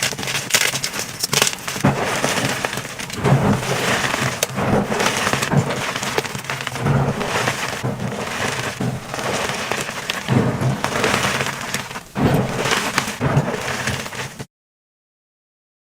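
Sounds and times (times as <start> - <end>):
chalk blocks crunching: 0.0 - 14.5.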